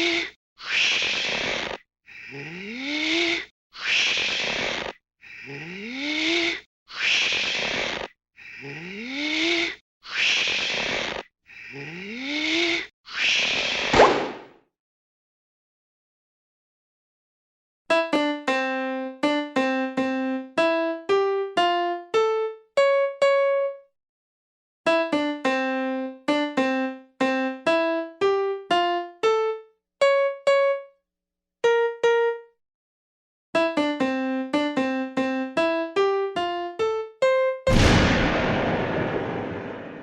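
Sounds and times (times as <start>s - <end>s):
piano-like keyboard tune: 17.9s - 23.9s, 24.9s - 31.0s, 31.6s - 32.6s, 33.6s - 38.0s.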